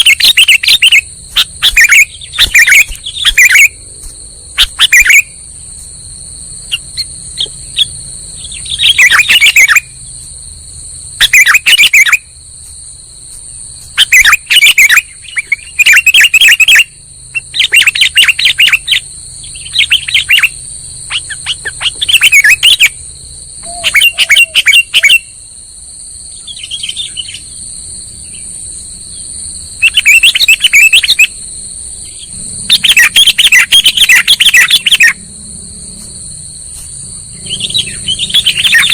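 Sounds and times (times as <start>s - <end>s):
bulbul chirping calls: 0.0s - 3.8s, 4.5s - 5.4s, 6.6s - 10.1s, 11.2s - 12.2s, 14.0s - 23.0s, 23.6s - 25.4s, 26.4s - 27.6s, 29.8s - 31.4s, 32.0s - 35.2s, 36.7s - 38.9s
high-pitched whine: 0.0s - 12.4s, 26.3s - 38.9s.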